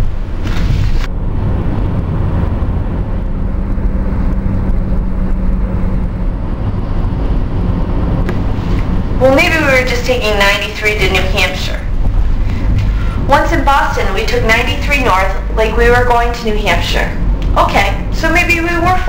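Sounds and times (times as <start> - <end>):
car road and engine rumble: 0.0 - 19.0
steady hum: 0.0 - 19.0.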